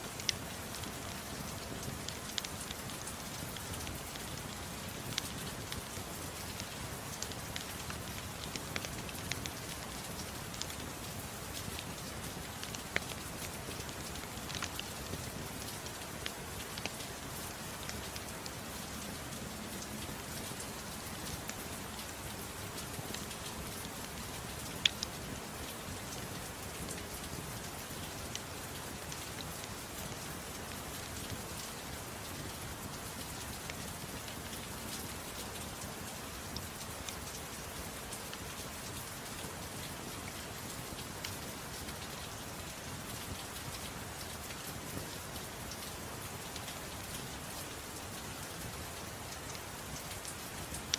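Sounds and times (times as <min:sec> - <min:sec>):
steady soft rain: 0:00.0 - 0:50.9.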